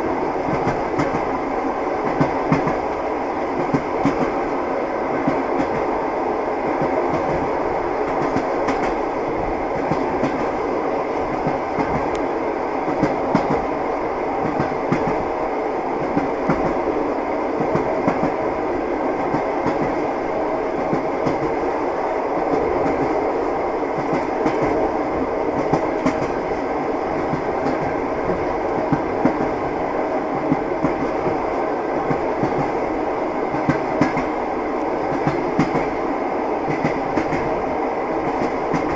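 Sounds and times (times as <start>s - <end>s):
railway carriage rumble: 0.0s - 38.9s
train wheels clicking over rail joints: 25.6s - 32.8s, 33.5s - 36.0s, 36.7s - 37.5s, 38.2s - 38.9s.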